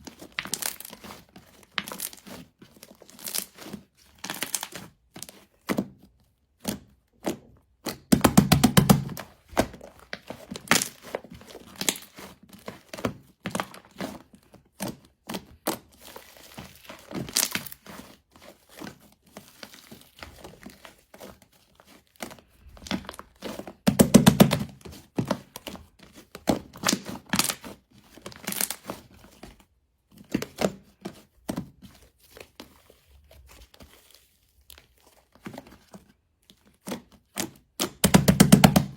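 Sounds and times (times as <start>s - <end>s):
slime squelch: 0.0s - 5.8s, 6.5s - 29.6s
slime crackling and popping: 3.2s - 3.6s, 16.7s - 17.9s.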